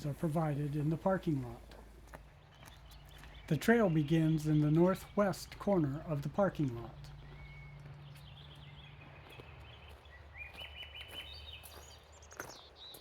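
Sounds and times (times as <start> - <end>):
songbird singing whistled notes: 2.4 - 6.1, 6.7 - 13.0.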